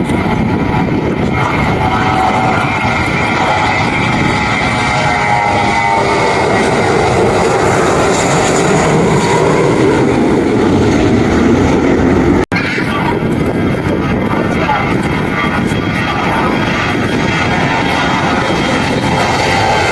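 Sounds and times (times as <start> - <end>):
airplane engines roaring: 0.0 - 19.9
faint engine whine: 0.0 - 19.9.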